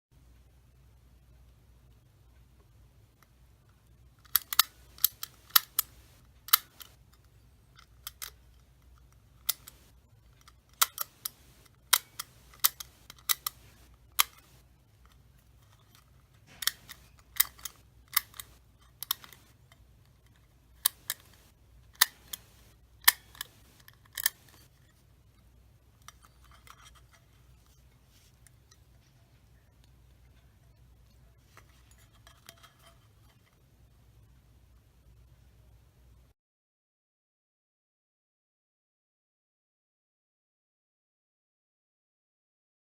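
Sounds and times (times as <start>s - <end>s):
mechanical switch clicks: 10.8s - 14.6s, 16.5s - 19.5s, 20.8s - 24.6s.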